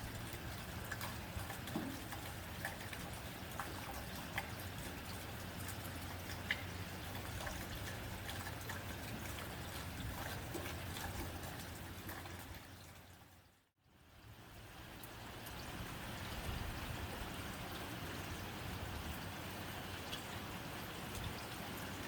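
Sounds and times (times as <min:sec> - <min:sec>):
sharp raindrop ticks: 0:00.0 - 0:12.6
rain on a tin roof: 0:00.0 - 0:22.0.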